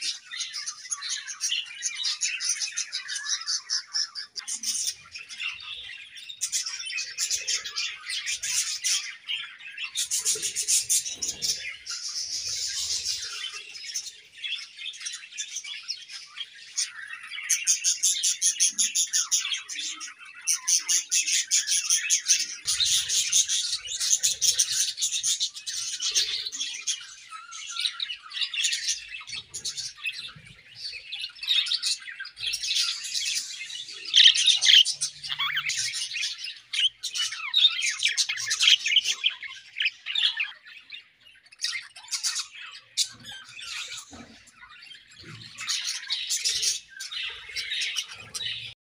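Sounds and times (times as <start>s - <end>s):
budgerigars chirping: 0.0s - 48.7s.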